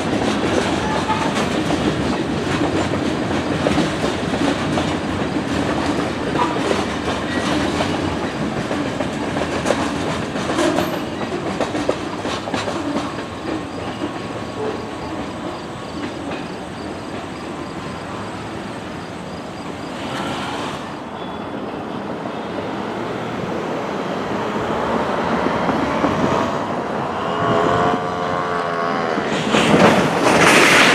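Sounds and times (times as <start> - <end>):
wheels clacking over rail joints: 0.0 - 18.3, 29.2 - 30.9
freight train cars rumbling: 0.0 - 30.9.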